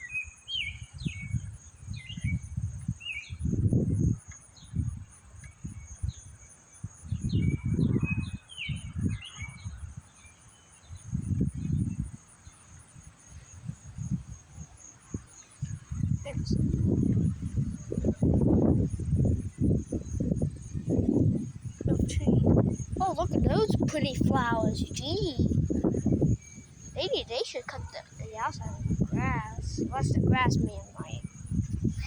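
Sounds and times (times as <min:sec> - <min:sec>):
high insect trill: 0:00.0 - 0:32.0
wind gusting on microphone: 0:00.5 - 0:10.1, 0:10.8 - 0:32.0
birds chirping: 0:18.9 - 0:32.0.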